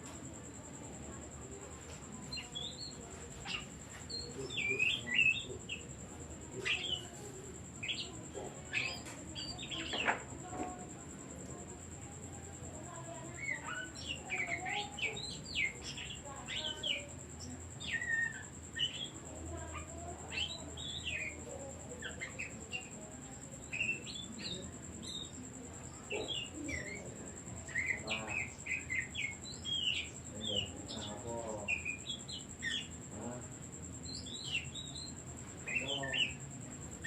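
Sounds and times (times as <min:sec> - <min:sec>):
bird singing whistled song: 0:17.8 - 0:19.2.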